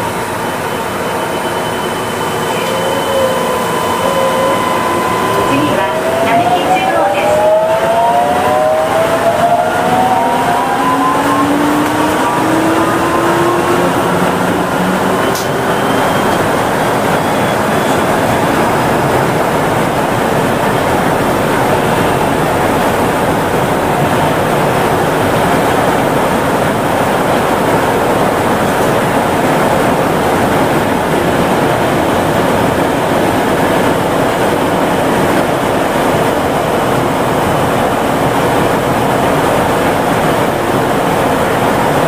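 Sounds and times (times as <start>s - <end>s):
train motor inverter whine: 0.0s - 42.0s
train tyres rolling on guideway: 8.4s - 42.0s
click: 15.3s - 15.5s.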